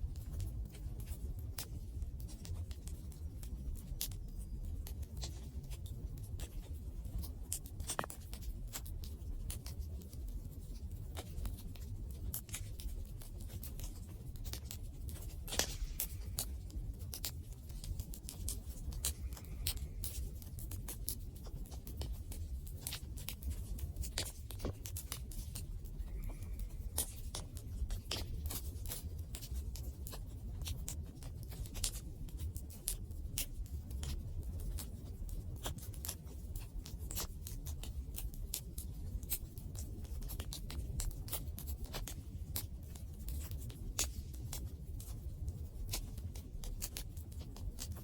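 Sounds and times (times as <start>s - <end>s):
low fire rumble: 0.0s - 48.0s
wood crackling and popping: 0.1s - 48.0s.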